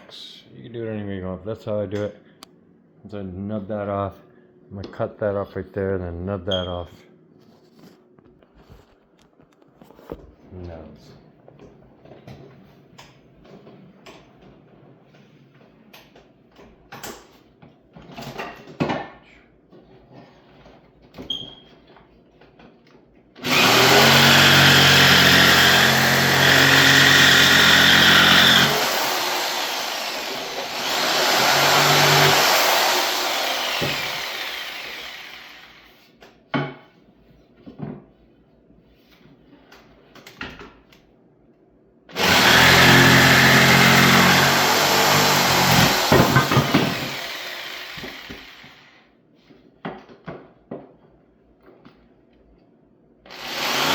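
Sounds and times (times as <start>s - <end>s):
electric power saw cutting: 23.4s - 35.9s, 42.1s - 49.0s, 53.3s - 53.9s.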